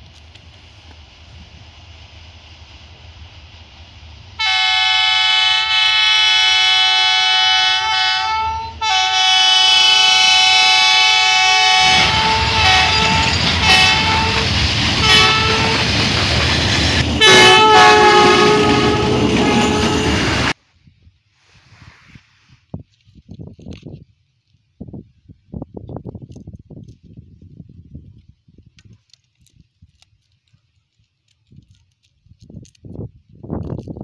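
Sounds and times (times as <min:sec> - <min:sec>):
train passing with rushing rumble: 0:00.0 - 0:20.6
train horn blasts: 0:04.4 - 0:15.9, 0:17.2 - 0:20.6.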